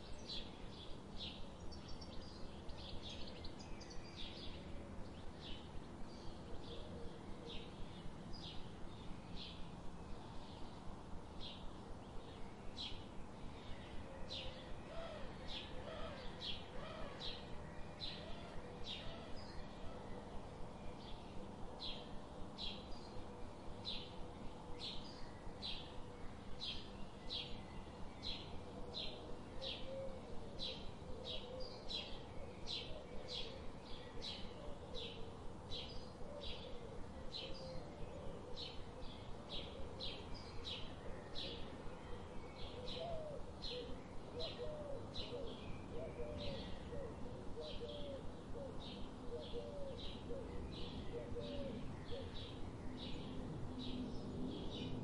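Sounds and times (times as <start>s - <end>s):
lower wavering bird calls: 12.9s - 54.1s.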